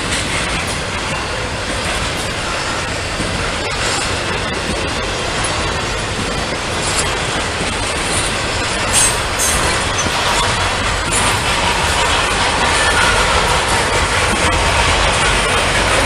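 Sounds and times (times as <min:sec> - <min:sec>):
train wheels rumbling on rail: 0:00.0 - 0:16.0
high-pitched wheel squeals: 0:08.8 - 0:10.6.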